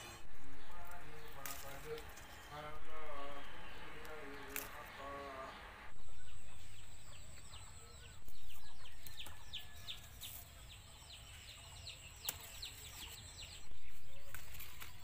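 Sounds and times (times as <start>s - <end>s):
low rumbling noise: 0.0s - 8.8s
birds chirping: 0.0s - 15.0s.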